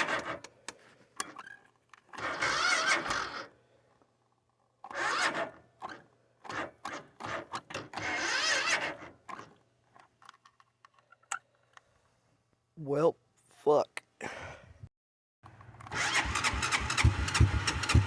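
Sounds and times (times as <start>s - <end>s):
engine cranking on starter: 15.5s - 18.0s.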